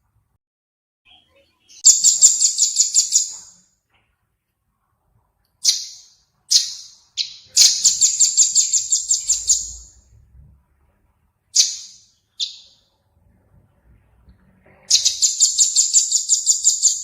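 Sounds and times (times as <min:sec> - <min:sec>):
songbird calling: 0:05.6 - 0:10.0, 0:14.8 - 0:17.0.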